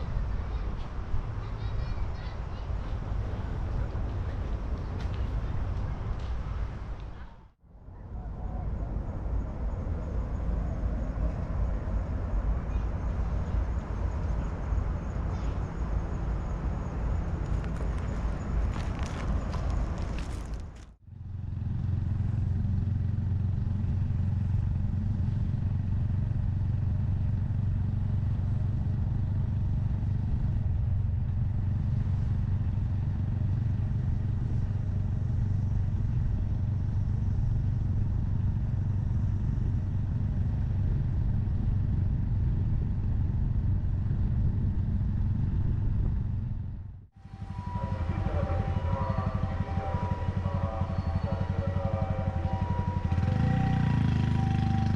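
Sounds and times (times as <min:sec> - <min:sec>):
motorcycle engine running: 0:21.1 - 0:54.9
high whining tones: 0:47.2 - 0:54.9.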